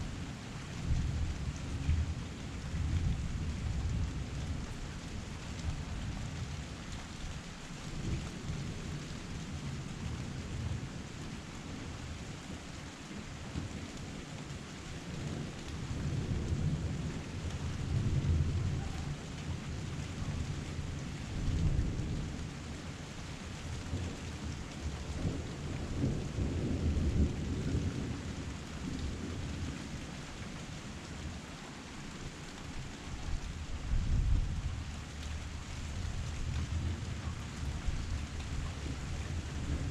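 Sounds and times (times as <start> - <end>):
rain pouring: 0.0 - 39.9
low rolling thunder: 0.2 - 6.8, 15.0 - 23.0, 23.6 - 30.3, 33.5 - 39.9.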